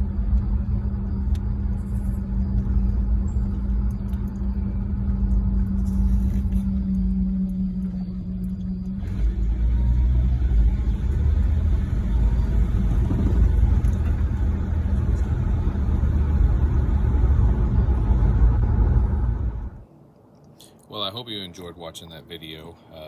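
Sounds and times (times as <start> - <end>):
pickup engine and road noise: 0.0 - 19.8.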